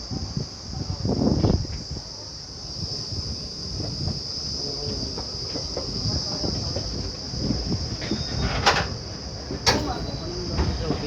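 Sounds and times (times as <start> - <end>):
train carriage rumbling and clattering: 3.2 - 11.0.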